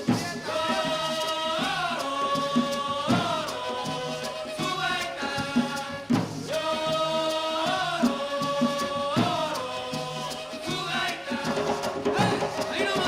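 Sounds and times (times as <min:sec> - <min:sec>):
hand drums beating: 0:00.0 - 0:13.0
duct flute playing held notes: 0:03.2 - 0:07.5, 0:09.6 - 0:13.0.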